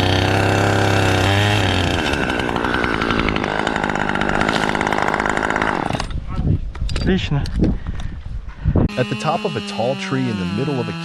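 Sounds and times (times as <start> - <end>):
chainsaw engine running: 0.0 - 6.1, 8.9 - 11.0.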